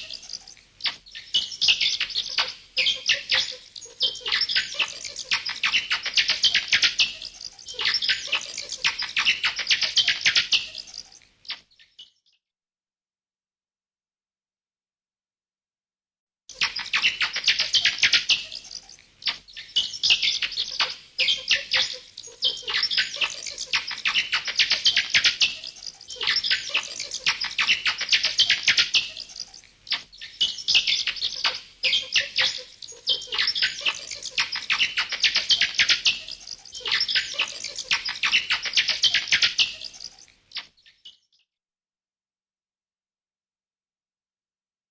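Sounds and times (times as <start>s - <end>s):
bats chattering: 0.0s - 11.2s, 16.5s - 40.7s.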